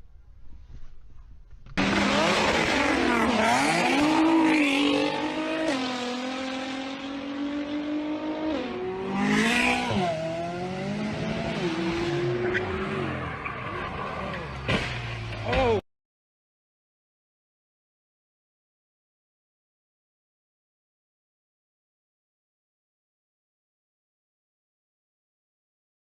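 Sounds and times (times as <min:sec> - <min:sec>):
car engine revving: 0:01.8 - 0:15.5.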